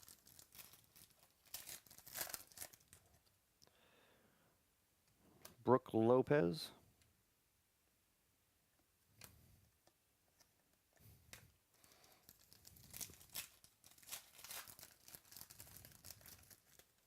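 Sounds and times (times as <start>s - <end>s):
wrapper tearing and crinkling: 0.0s - 3.2s, 11.8s - 17.0s.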